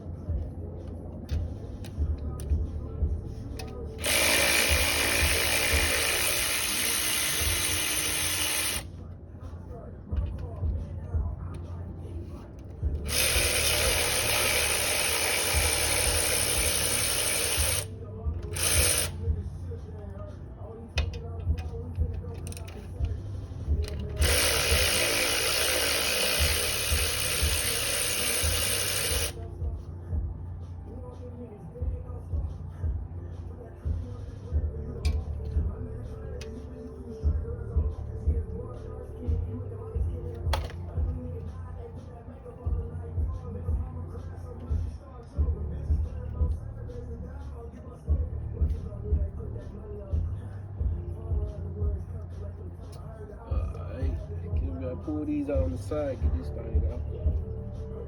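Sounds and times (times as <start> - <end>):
power tool running: 3.6 - 8.9, 12.9 - 19.2, 23.8 - 29.4.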